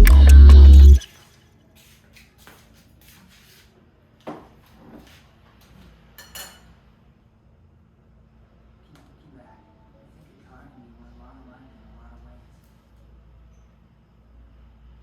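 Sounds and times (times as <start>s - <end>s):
low steady hum: 0.0s - 1.0s.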